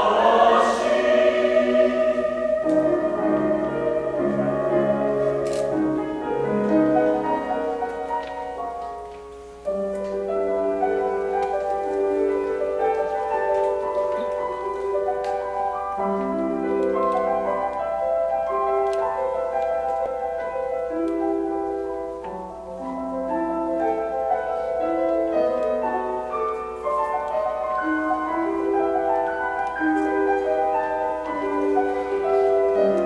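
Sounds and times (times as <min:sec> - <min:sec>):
choir singing: 0:00.0 - 0:05.2
piano accompaniment: 0:00.0 - 0:33.0.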